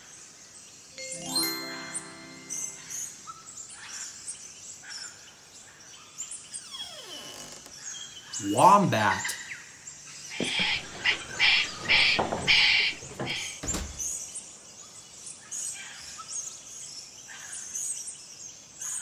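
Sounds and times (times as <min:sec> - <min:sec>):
birds chirping: 0:07.7 - 0:14.4.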